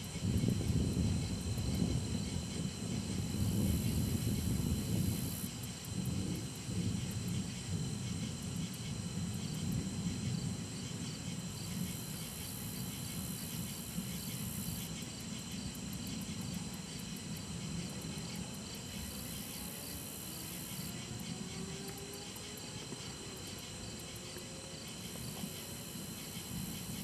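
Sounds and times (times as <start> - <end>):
crickets chirping: 0.0 - 27.0
high insect buzz: 0.0 - 27.0
distant thunder rumble: 0.1 - 12.1.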